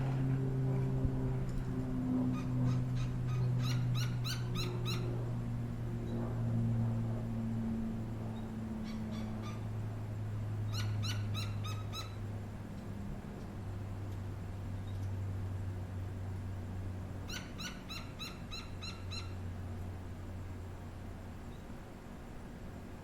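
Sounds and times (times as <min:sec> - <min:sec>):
steady low hum: 0:00.0 - 0:23.0
woodpecker calling: 0:02.3 - 0:05.1, 0:08.8 - 0:09.7, 0:10.7 - 0:12.2, 0:17.3 - 0:19.4.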